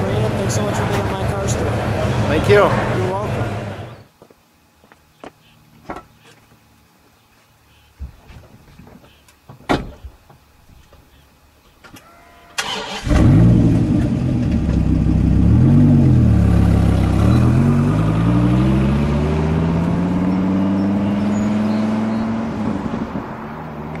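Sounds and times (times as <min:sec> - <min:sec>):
car engine revving: 0:12.6 - 0:24.0.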